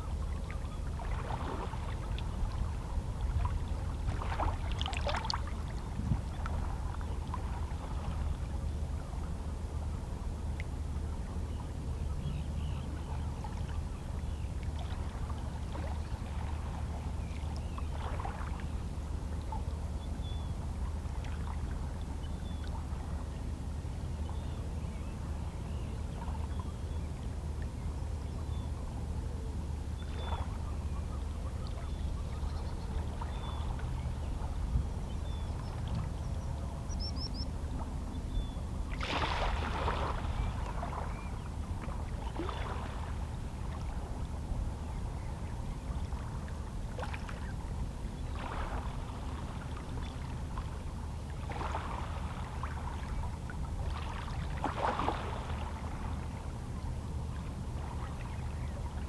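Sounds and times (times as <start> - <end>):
waves lapping against rocks: 53.9 - 56.0.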